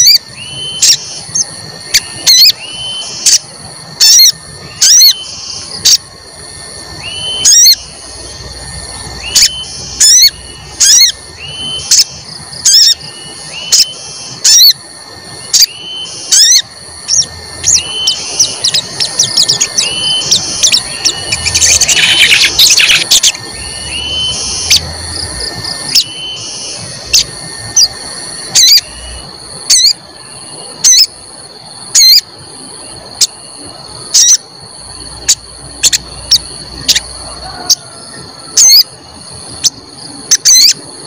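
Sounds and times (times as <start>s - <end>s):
bird chirping: 0.0s - 6.0s, 7.0s - 14.8s, 15.4s - 31.1s, 35.2s - 37.8s
steady high-pitched whine: 0.0s - 41.0s.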